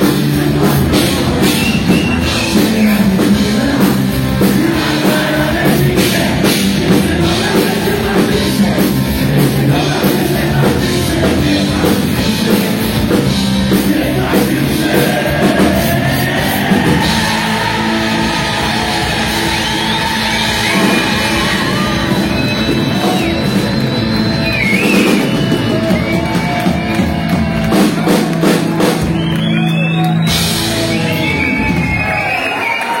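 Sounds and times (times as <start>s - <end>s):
person singing: 0.0s - 22.3s
rock drums: 0.0s - 33.0s.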